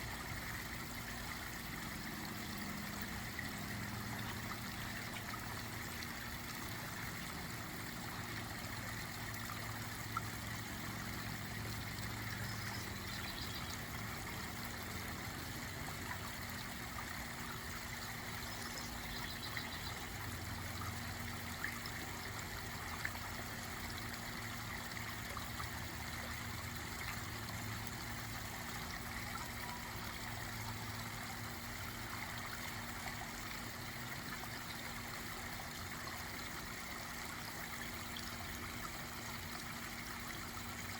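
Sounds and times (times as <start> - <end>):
waterfall trickling and splashing: 0.0 - 40.9.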